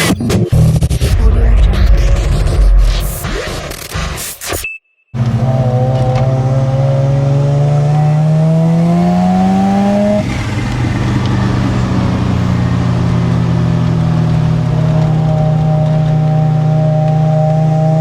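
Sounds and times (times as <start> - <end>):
rotary car engine accelerating: 5.2 - 18.0.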